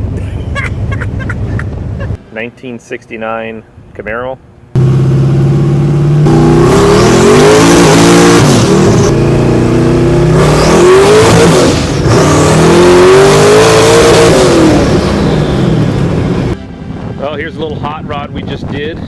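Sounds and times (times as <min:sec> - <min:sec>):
car engine accelerating hard: 0:04.8 - 0:16.6.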